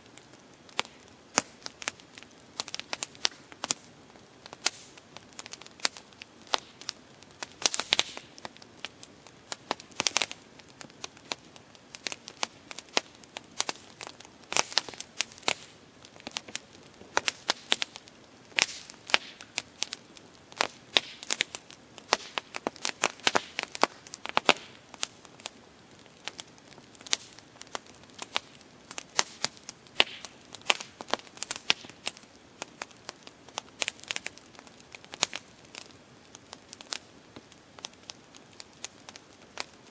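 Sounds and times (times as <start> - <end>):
campfire crackling and popping: 0.0 - 39.9
faint low hiss: 0.0 - 39.9.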